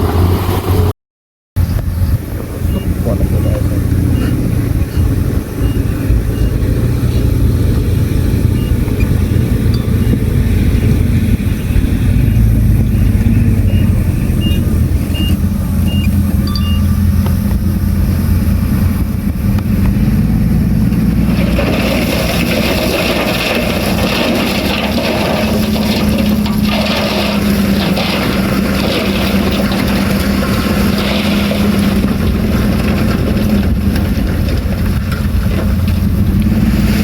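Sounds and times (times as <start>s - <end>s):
heavy diesel machinery rumble: 1.6s - 37.0s
short high beeps: 13.6s - 17.2s.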